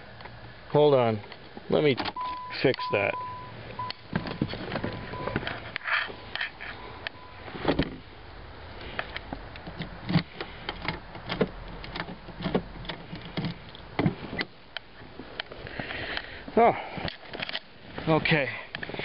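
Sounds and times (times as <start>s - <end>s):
car door and lock clicks: 3.8s - 5.8s, 9.1s - 14.6s.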